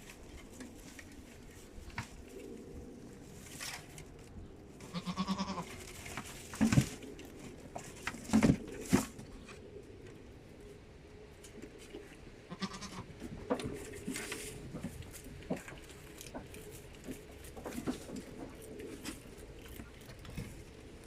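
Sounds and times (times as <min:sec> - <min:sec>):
bleat-like animal call: 0:04.8 - 0:05.7, 0:12.5 - 0:13.1.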